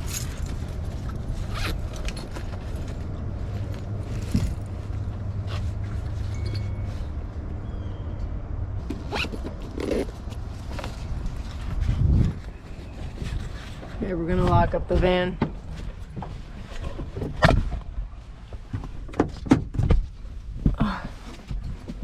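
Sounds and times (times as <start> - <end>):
handling clicks and knocks: 0.0 - 7.0
steady low rumble: 0.0 - 19.1
zipper: 1.4 - 2.4, 9.0 - 10.3.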